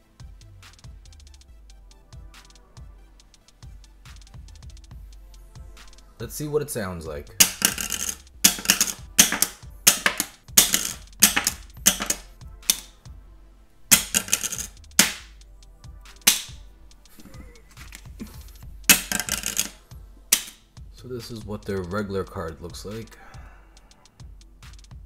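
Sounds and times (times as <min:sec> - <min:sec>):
metal card clinking on hard surface: 0:07.4 - 0:12.9, 0:13.9 - 0:15.3, 0:16.3 - 0:16.6, 0:18.9 - 0:19.8.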